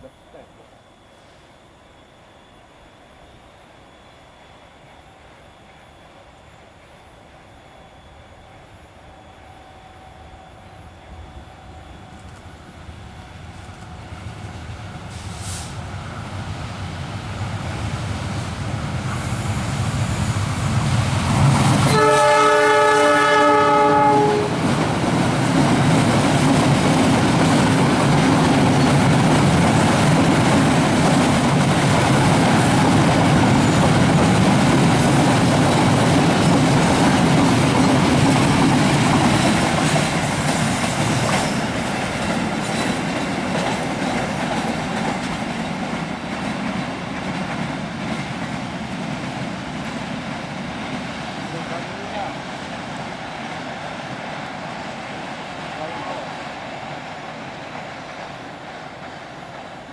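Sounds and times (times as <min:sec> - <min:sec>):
train approaching: 0:00.0 - 0:59.9
train horn blast: 0:21.8 - 0:24.7
train wheels clattering on rails: 0:24.0 - 0:59.9.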